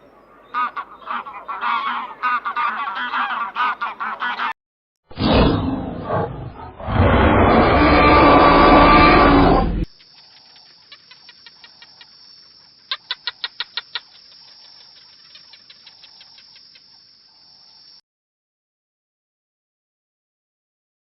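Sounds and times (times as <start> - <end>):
loud animal roar: 5.2 - 9.8
small bird chirping: 9.9 - 17.0.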